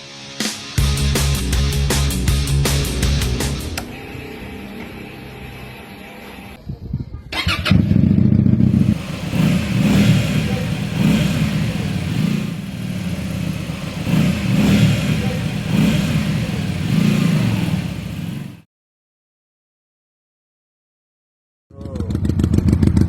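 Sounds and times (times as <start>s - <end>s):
motorcycle engine idling unevenly: 8.2s - 18.6s.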